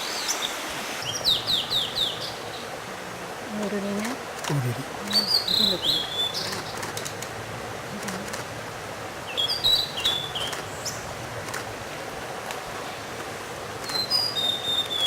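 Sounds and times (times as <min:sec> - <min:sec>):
bird whistling song: 0:05.1 - 0:06.6, 0:09.3 - 0:11.0, 0:13.8 - 0:15.0.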